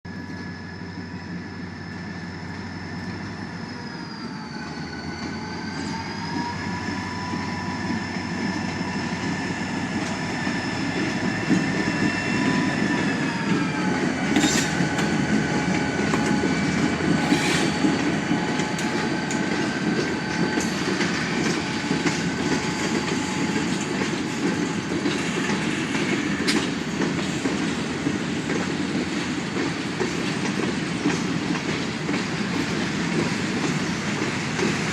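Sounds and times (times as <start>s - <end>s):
freight train rumbling by: 0.1s - 34.9s
high wheel squeal: 3.0s - 24.4s.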